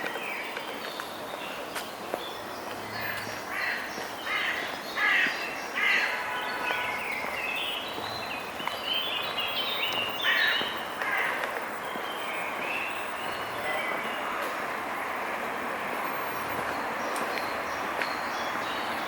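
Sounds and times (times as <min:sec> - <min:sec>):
crows cawing: 0:03.5 - 0:06.2, 0:10.2 - 0:11.5.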